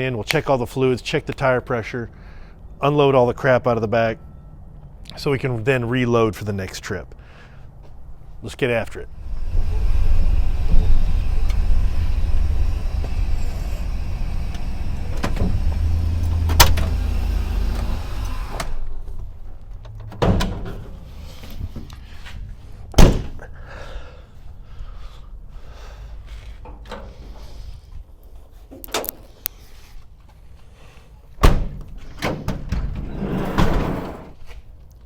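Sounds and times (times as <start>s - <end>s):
engine rumbling: 9.0s - 22.7s
van doors clunking: 9.6s - 18.9s
door slam: 23.0s - 23.4s, 32.7s - 34.4s.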